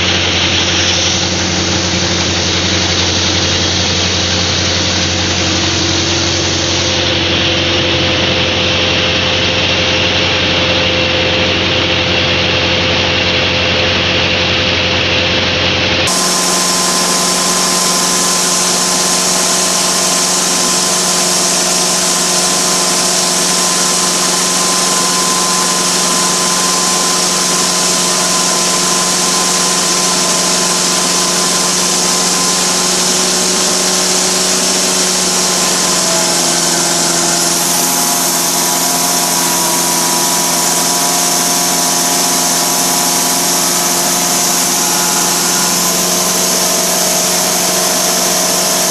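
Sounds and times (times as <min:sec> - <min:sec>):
milling machine droning: 0:16.1 - 0:48.9.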